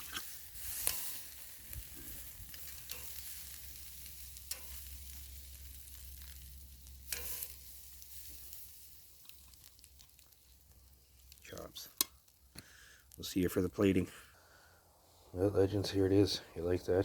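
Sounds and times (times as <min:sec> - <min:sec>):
meat sizzling on a grill: 0:00.0 - 0:13.3.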